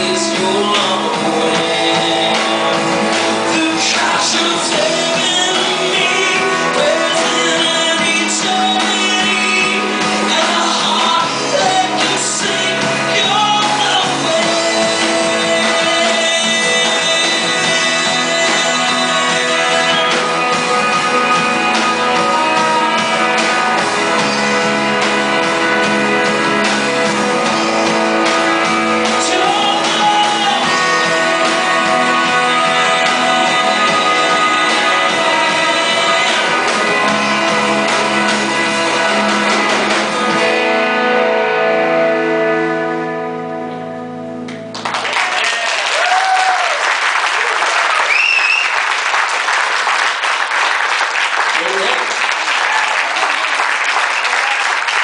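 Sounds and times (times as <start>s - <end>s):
singing: 0.0s - 23.5s, 29.0s - 39.5s
guitars: 0.0s - 47.2s
worship band playing: 0.0s - 55.0s.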